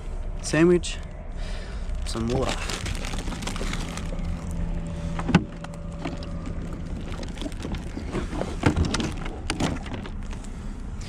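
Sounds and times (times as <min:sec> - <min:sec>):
faint steady hum: 0:00.0 - 0:11.0
cooler box being handled: 0:02.2 - 0:10.5.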